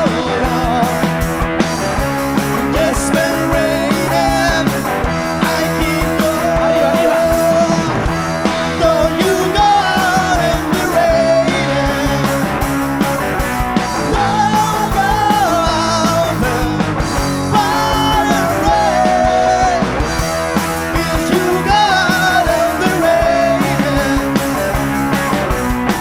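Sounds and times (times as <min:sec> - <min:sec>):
person singing: 0:00.0 - 0:01.1, 0:02.5 - 0:12.6, 0:14.0 - 0:20.0, 0:20.8 - 0:24.8
rock band playing live: 0:00.0 - 0:26.0.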